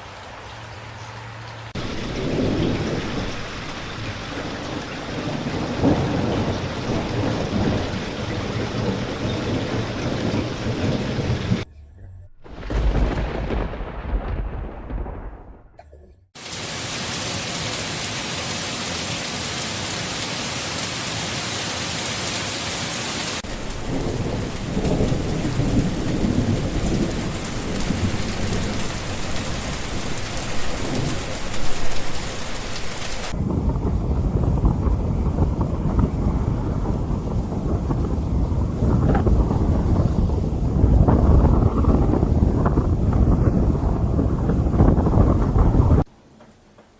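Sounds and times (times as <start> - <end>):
heavy rain hissing: 0.0 - 11.7, 16.4 - 41.0
thunder rumbling: 1.7 - 16.3, 23.4 - 46.1.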